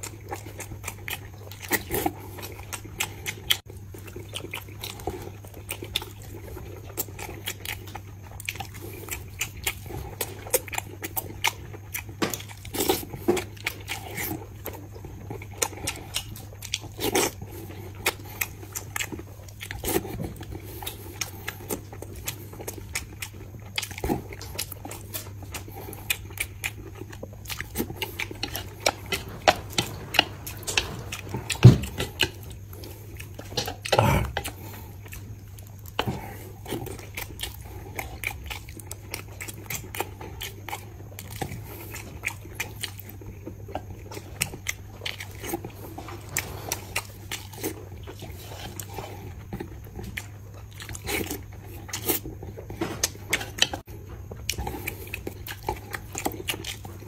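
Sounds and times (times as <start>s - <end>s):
man chewing food: 0.0s - 57.0s
steady low hum: 0.0s - 57.0s.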